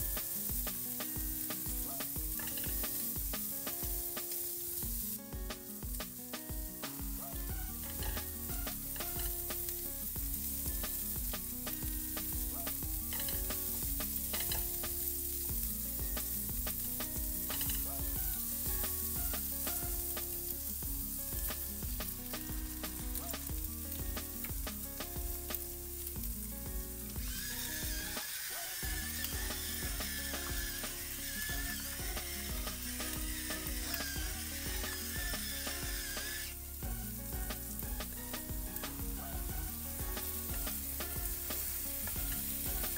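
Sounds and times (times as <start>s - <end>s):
shrimp sizzling in hot oil: 0.0s - 42.9s
soft background music: 0.0s - 42.9s
spatula scraping a pan: 2.3s - 3.1s, 7.5s - 9.7s, 11.6s - 14.8s
pepper mill grinding: 2.3s - 3.2s, 12.6s - 14.9s, 17.4s - 19.9s, 27.2s - 39.3s.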